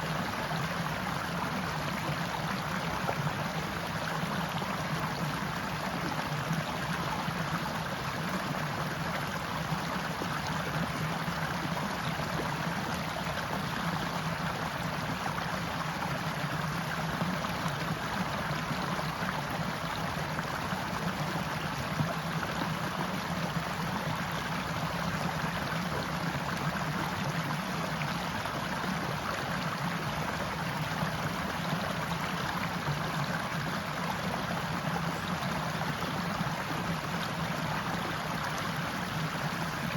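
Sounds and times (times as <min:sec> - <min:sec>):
forest stream flowing: 0:00.0 - 0:39.9.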